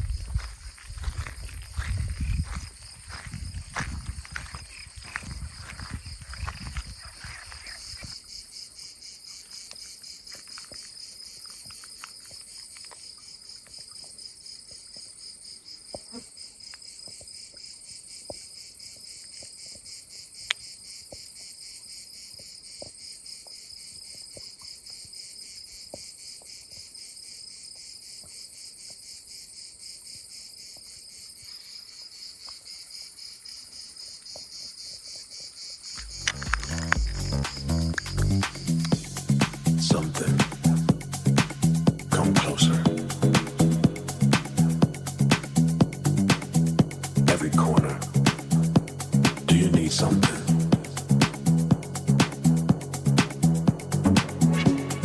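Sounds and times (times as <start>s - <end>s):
low rumble: 0.0s - 4.6s, 36.0s - 54.8s
insects chirping: 0.0s - 55.0s.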